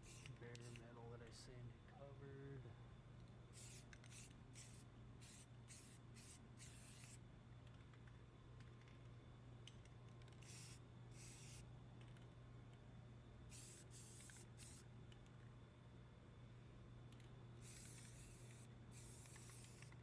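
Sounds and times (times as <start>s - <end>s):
aerosol spray can hissing: 0.0s - 0.8s, 3.6s - 7.2s, 10.4s - 11.6s, 13.5s - 14.8s, 17.6s - 20.0s
low steady hum: 0.0s - 20.0s.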